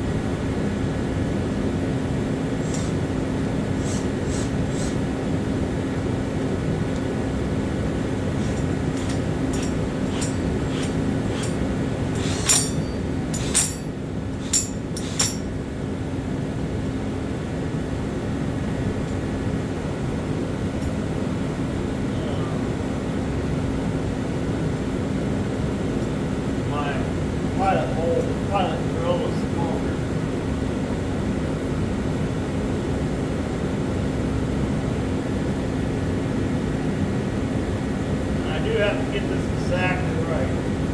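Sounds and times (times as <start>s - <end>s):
motor hum: 1.4s - 17.5s
power drill boring: 2.6s - 3.1s, 3.7s - 5.0s, 8.3s - 15.5s
sharp metallic clinks: 8.4s - 15.6s.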